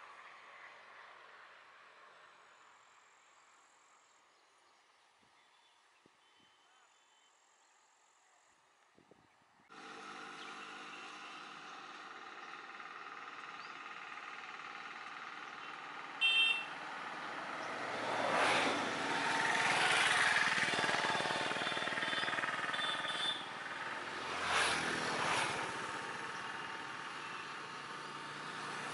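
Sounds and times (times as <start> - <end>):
vehicle engine running: 9.7 - 28.9.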